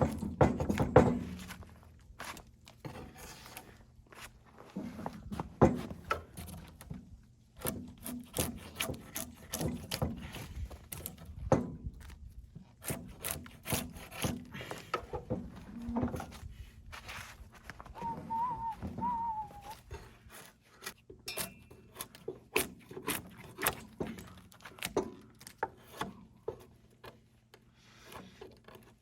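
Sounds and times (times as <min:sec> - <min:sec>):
wooden boards knocking and scraping: 0:00.0 - 0:01.7.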